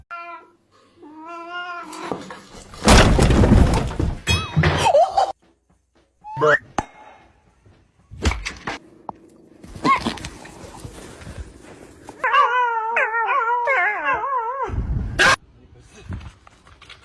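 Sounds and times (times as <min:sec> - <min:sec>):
cat meowing and yowling: 0:12.2 - 0:14.7.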